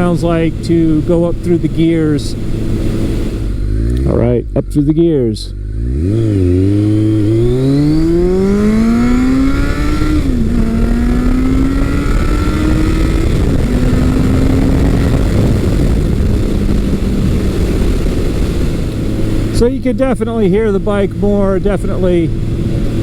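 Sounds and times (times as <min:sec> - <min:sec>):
motorcycle engine accelerating: 0:00.0 - 0:23.0
wind noise on microphone: 0:05.6 - 0:23.0.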